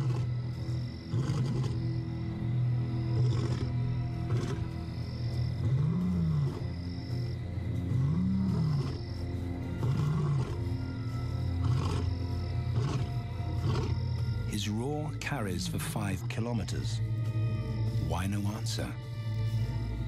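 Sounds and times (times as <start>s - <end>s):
lion roaring: 0.0s - 0.4s, 1.1s - 1.8s, 3.1s - 4.8s, 5.6s - 6.8s, 7.7s - 9.1s, 9.7s - 10.7s, 11.6s - 12.1s
orchestral music: 2.1s - 20.0s.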